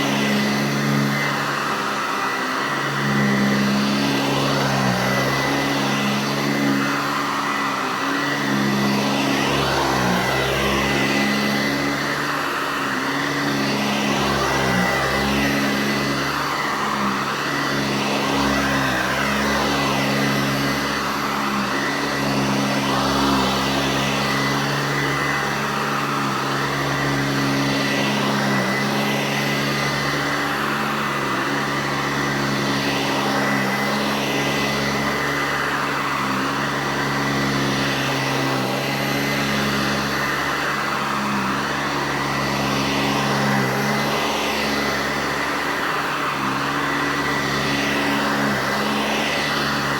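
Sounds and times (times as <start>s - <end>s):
upright vacuum cleaner running: 0.0s - 49.9s.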